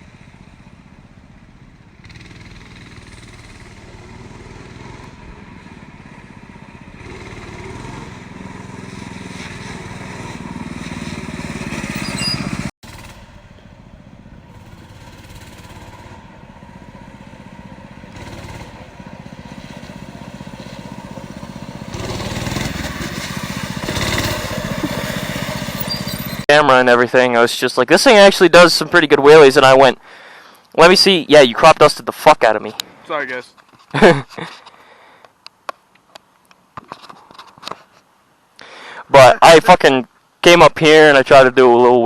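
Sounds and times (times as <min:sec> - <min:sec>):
small engine revving: 0:01.9 - 0:13.5, 0:14.4 - 0:26.5.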